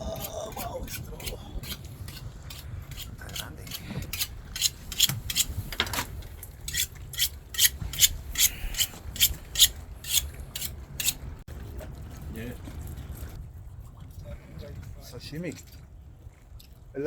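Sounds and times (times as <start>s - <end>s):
knife scraping fish scales: 0.2s - 5.7s, 6.6s - 11.2s.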